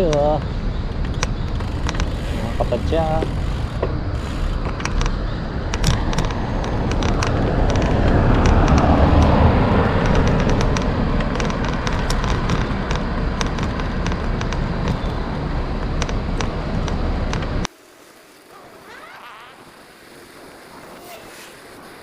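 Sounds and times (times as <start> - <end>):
wind on microphone: 0.0 - 17.7, 18.8 - 22.0
road traffic noise: 0.0 - 22.0
sharp clicks: 4.6 - 15.1.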